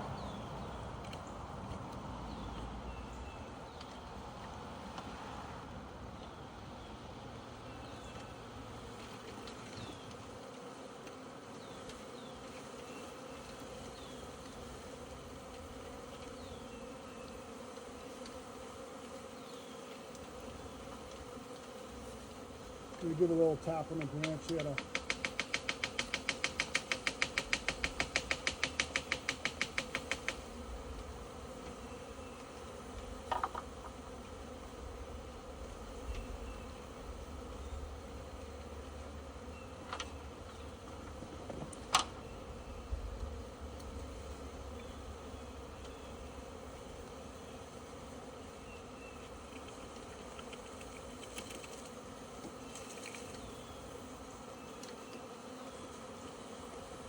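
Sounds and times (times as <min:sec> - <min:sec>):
honey bees buzzing: 0:00.0 - 0:57.0
rapid tapping on branch: 0:23.9 - 0:30.5.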